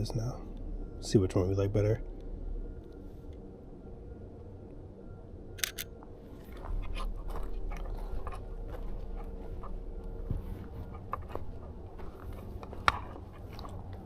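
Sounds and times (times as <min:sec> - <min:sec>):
camera shutter clicks: 0:05.6 - 0:05.9.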